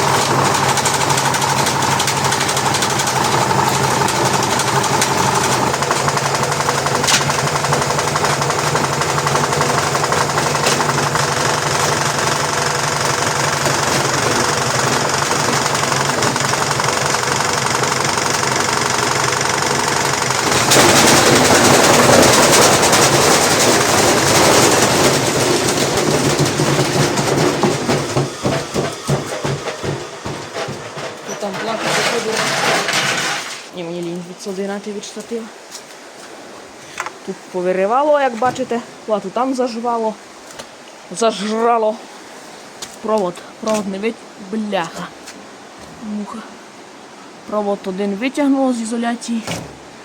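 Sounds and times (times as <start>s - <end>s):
brick knocking in drum: 0.0s - 33.6s
washing machine spinning: 0.0s - 33.7s.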